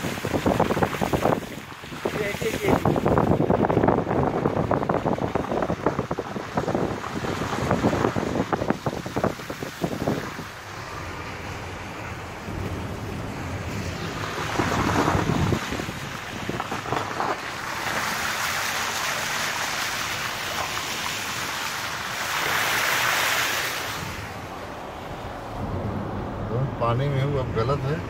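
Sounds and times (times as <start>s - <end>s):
floodwater rushing and splashing: 0.0s - 28.0s.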